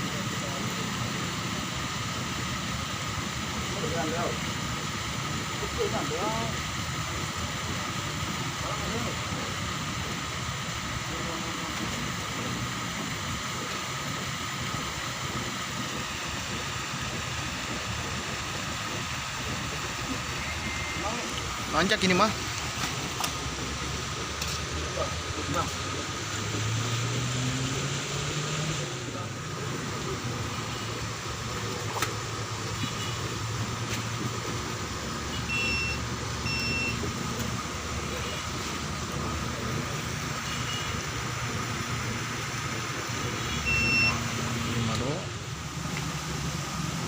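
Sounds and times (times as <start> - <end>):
steady rushing noise: 0.0 - 47.0
short electronic beeps: 35.4 - 37.0, 43.6 - 44.2.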